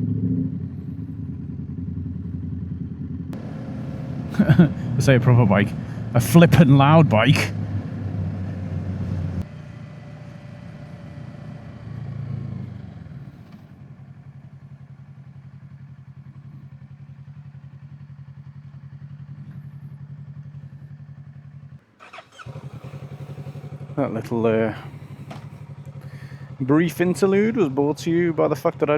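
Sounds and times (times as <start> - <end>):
motorcycle engine idling: 0.0 - 28.9.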